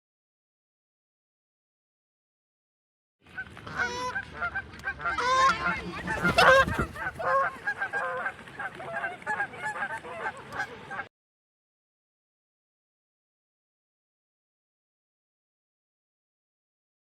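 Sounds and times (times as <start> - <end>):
waterfowl calling: 3.3 - 11.1.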